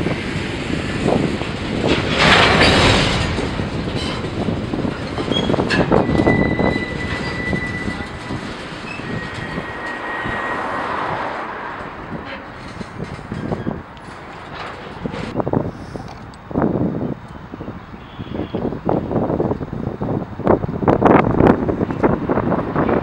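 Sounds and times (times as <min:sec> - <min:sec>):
train clanks: 0:00.0 - 0:15.4
freight train rumble: 0:00.0 - 0:23.0
high-pitched train squeal: 0:05.0 - 0:14.3.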